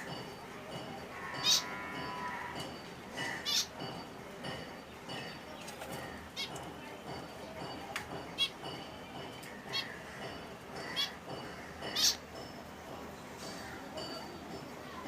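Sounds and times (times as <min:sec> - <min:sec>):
finches chirping: 0:01.0 - 0:07.6, 0:11.8 - 0:12.2.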